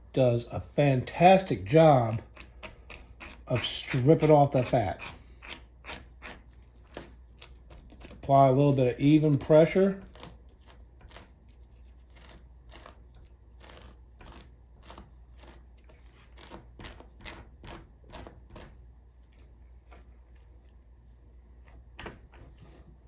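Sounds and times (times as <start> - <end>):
plastic scraper scratching skin: 1.7 - 18.9.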